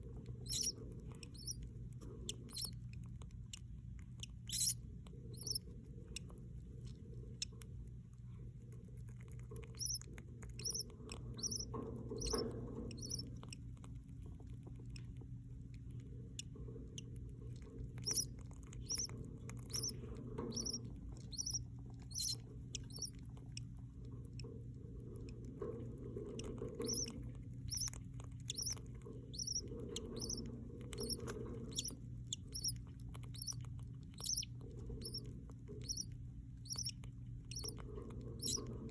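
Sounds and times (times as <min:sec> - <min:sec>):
steady low hum: 0:00.0 - 0:38.9
chicks cheeping: 0:00.3 - 0:02.8, 0:04.2 - 0:06.3, 0:09.6 - 0:13.7, 0:17.9 - 0:23.7, 0:26.2 - 0:38.9.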